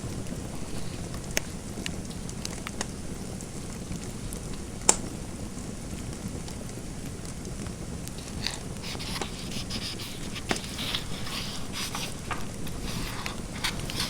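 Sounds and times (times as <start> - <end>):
low background noise: 0.0 - 14.0
fire crackling and popping: 6.1 - 9.6
pen writing on paper: 8.2 - 14.0.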